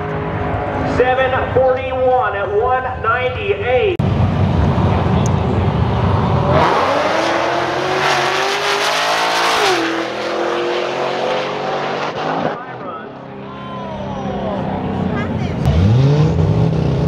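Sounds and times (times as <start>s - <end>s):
drag race car engine: 4.0s - 17.0s.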